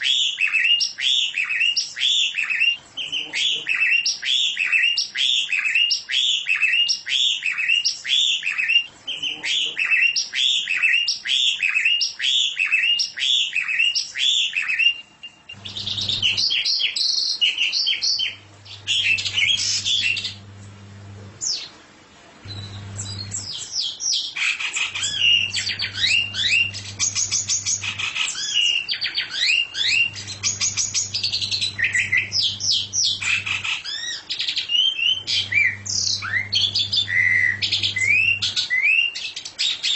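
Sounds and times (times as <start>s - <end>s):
songbird singing: 0.0s - 21.8s, 22.5s - 39.9s
low hum: 18.4s - 21.4s, 22.5s - 23.4s, 25.0s - 28.0s, 35.2s - 38.6s.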